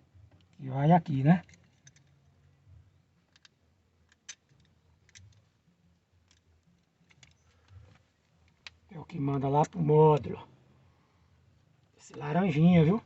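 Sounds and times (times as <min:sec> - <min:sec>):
faint clicks of wires handled: 0:03.2 - 0:10.3.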